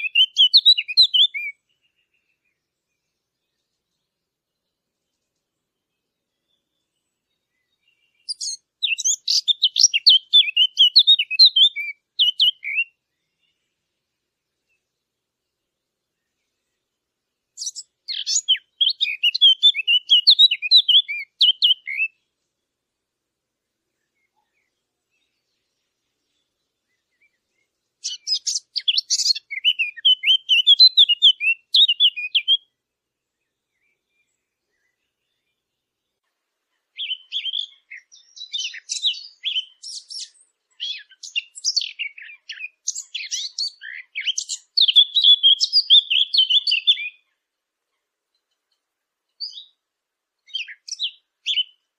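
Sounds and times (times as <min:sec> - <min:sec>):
warbler singing: 0:00.0 - 0:22.8, 0:23.8 - 0:51.9.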